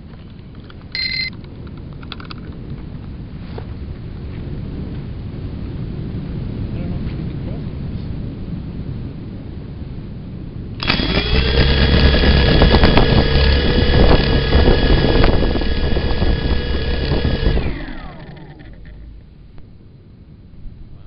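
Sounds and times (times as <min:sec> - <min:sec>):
motor whining: 0:10.8 - 0:19.6.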